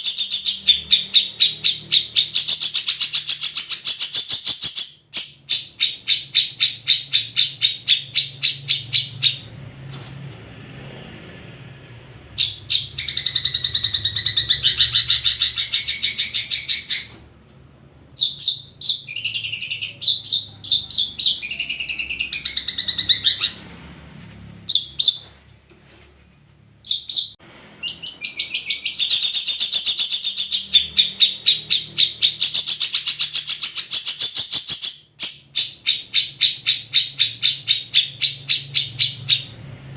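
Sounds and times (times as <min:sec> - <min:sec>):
shrike singing: 0:18.1 - 0:23.6.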